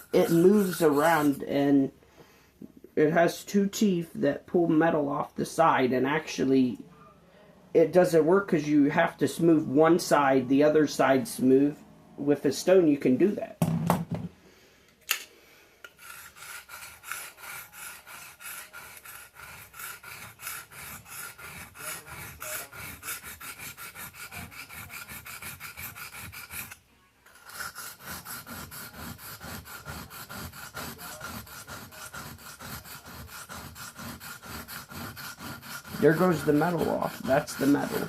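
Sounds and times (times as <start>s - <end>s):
knife scraping on whetstone: 0.0s - 1.5s, 15.9s - 38.0s.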